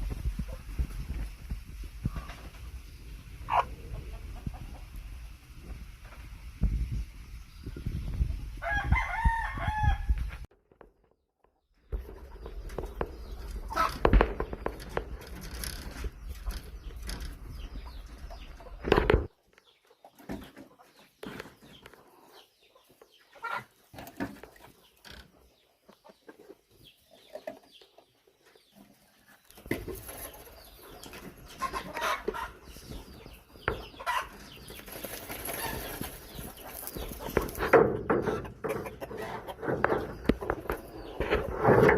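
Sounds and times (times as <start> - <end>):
chickens clucking: 0.0 - 10.3, 11.9 - 41.9.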